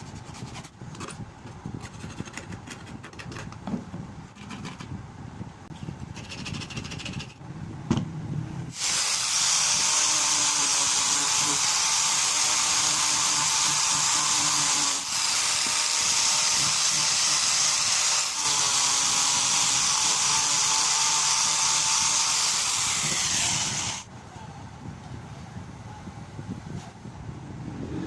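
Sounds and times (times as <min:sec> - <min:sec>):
power tool whining: 0:08.8 - 0:24.0.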